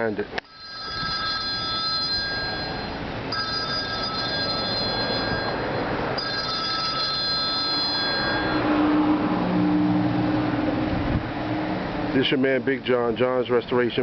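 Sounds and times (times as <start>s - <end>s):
steady background noise: 0.0s - 14.0s
telephone ringing: 0.4s - 8.7s.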